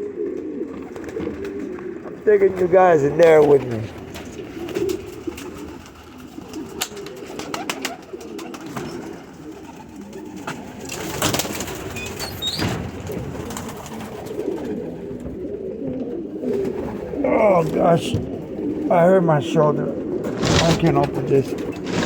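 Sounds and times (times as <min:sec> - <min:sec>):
pigeons cooing: 0:00.0 - 0:22.0
rustling: 0:20.2 - 0:22.0.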